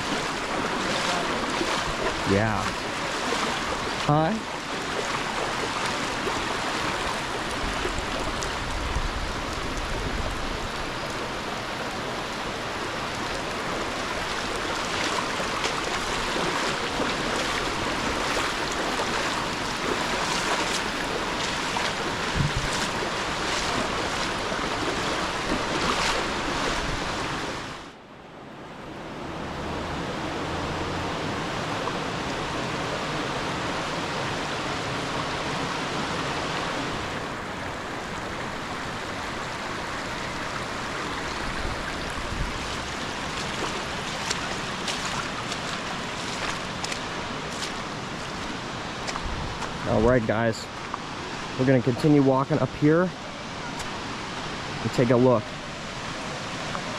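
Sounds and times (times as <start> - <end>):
river water flowing over rocks: 0.0 - 56.9.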